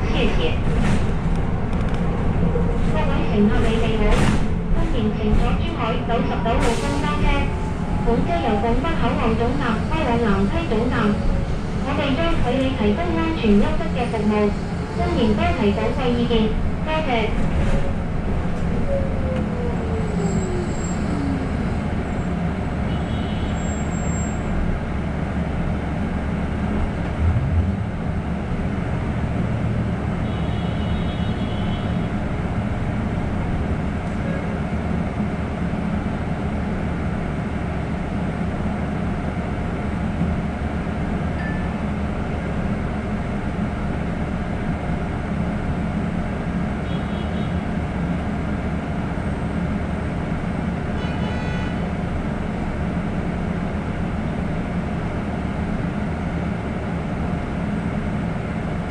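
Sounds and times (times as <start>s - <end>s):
bus driving rumble: 0.0s - 58.9s
bus bump: 0.6s - 5.7s.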